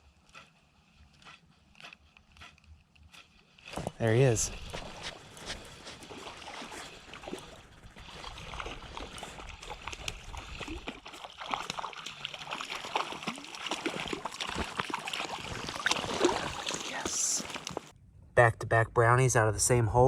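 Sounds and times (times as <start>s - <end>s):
water splashing and sloshing: 0.0s - 18.0s
running creek: 3.6s - 18.0s.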